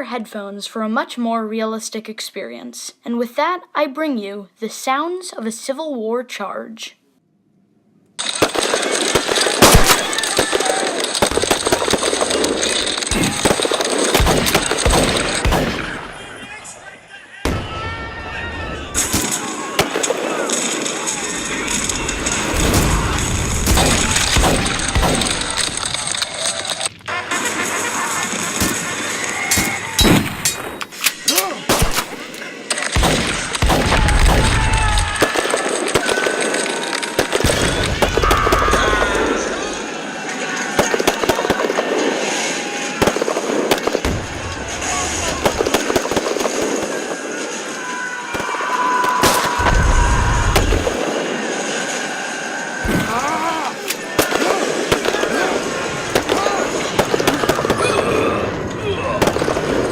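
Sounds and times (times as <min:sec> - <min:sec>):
musket volleys: 0:08.2 - 0:16.2, 0:28.5 - 0:39.0
musket shots: 0:08.2 - 0:16.6, 0:18.8 - 0:39.8, 0:40.7 - 0:59.9
men shouting: 0:09.2 - 0:13.7, 0:47.0 - 0:59.5.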